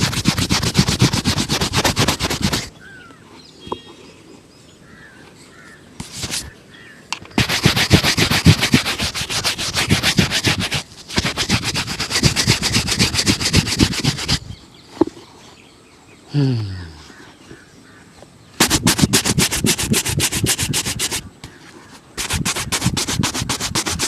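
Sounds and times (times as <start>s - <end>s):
brush scratching on a shoe: 0.0s - 2.7s, 6.0s - 6.6s, 7.4s - 14.5s, 18.6s - 24.0s.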